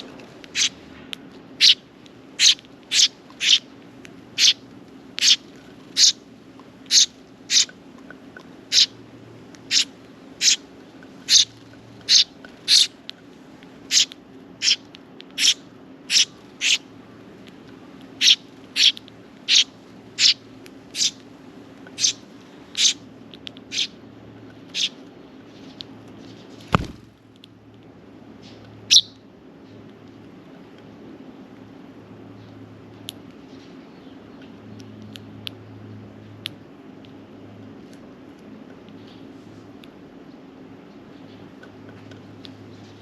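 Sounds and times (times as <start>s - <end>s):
sparrow chirping: 0.0s - 0.8s, 1.6s - 1.8s, 2.4s - 3.7s, 4.3s - 4.6s, 5.2s - 6.2s, 6.8s - 7.8s, 8.7s - 9.0s, 9.6s - 13.0s, 13.9s - 16.9s, 18.2s - 21.2s, 21.9s - 23.0s, 23.6s - 24.0s, 24.7s - 25.0s, 28.8s - 29.2s
steady low hum: 0.0s - 43.0s.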